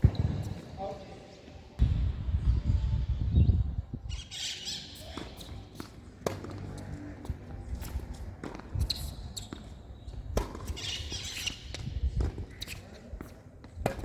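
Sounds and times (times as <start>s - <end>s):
tennis ball hit and bouncing: 5.1s - 14.0s.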